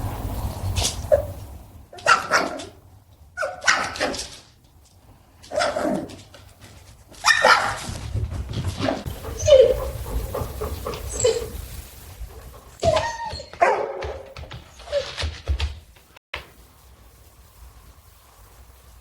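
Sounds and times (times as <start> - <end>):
dog barking: 1.1 - 2.8, 3.4 - 4.4, 5.5 - 6.1, 7.2 - 7.9, 8.8 - 11.7, 12.4 - 15.0.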